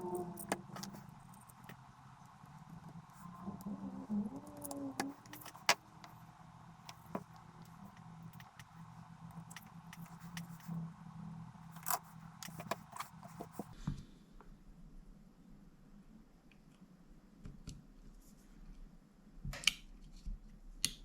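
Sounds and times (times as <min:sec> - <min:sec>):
tools and parts clinking: 0:00.0 - 0:03.3, 0:04.4 - 0:06.2, 0:06.8 - 0:10.7, 0:11.7 - 0:13.7
steady low hum: 0:00.0 - 0:19.4.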